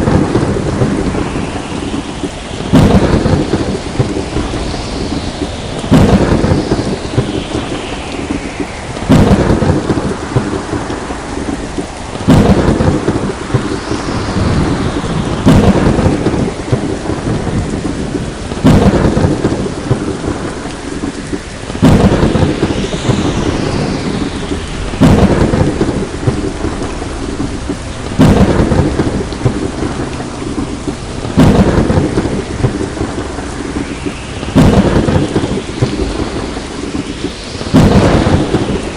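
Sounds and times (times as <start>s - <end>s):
heavy rain: 0.0s - 38.9s
thunderclaps: 0.0s - 38.9s.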